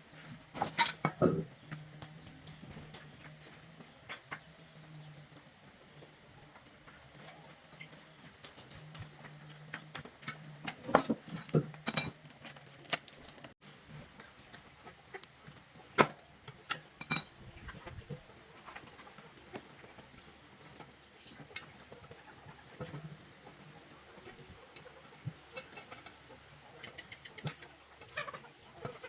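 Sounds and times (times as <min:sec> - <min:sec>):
chickens clucking faintly: 0:13.6 - 0:29.0.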